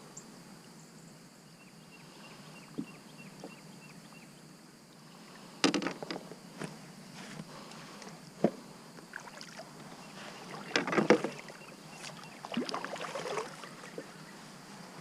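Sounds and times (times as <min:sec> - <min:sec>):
water splashing: 0:10.3 - 0:14.1.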